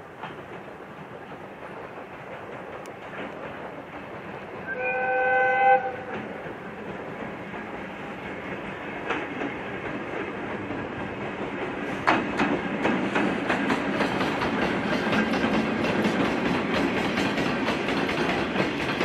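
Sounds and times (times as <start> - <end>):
wheels clicking over rail joints: 0.0 - 4.8, 5.8 - 19.0
train rumbling: 0.0 - 19.0
train horn blast: 4.6 - 6.4.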